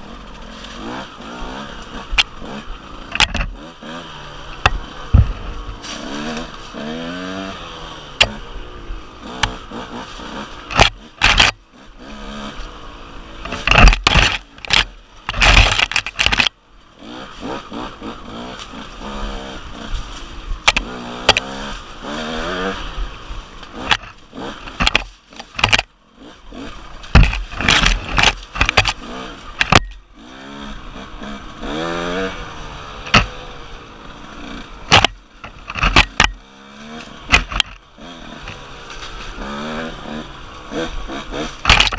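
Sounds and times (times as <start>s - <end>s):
dirt bike engine revving: 0.0s - 41.9s
loud thumps and scrapes: 3.1s - 3.6s, 4.5s - 6.8s, 9.4s - 11.6s, 13.4s - 16.5s, 23.7s - 25.9s, 27.0s - 30.0s, 33.0s - 33.4s, 34.9s - 36.4s, 37.3s - 37.8s, 41.4s - 41.9s.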